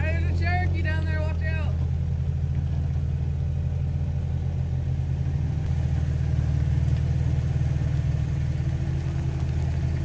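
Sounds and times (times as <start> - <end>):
engine idling with deep rumble: 0.0 - 10.0.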